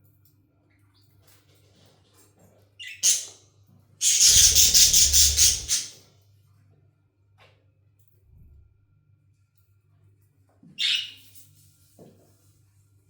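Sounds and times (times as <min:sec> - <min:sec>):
budgerigar rising chirp: 0:02.8 - 0:03.3, 0:04.0 - 0:05.9
budgerigar harsh squawk: 0:02.8 - 0:03.4, 0:04.0 - 0:05.9.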